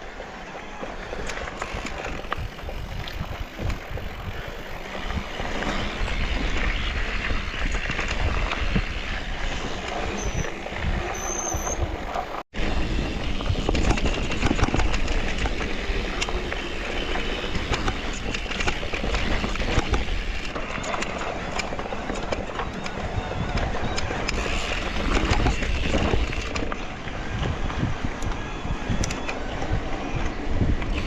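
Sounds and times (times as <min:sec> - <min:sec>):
bike tyre rumble and rattling: 0:00.0 - 0:31.0
wind rush on microphone: 0:01.0 - 0:31.0
short high squeaks: 0:10.1 - 0:11.9.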